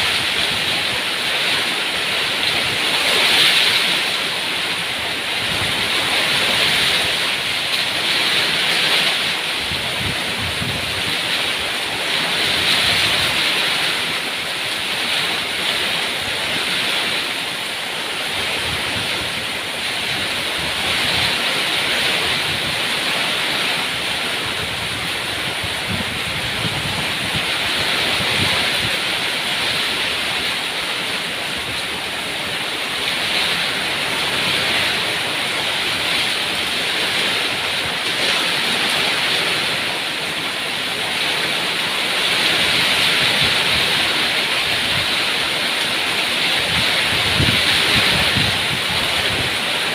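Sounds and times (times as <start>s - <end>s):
heavy rain falling: 0.0s - 49.9s.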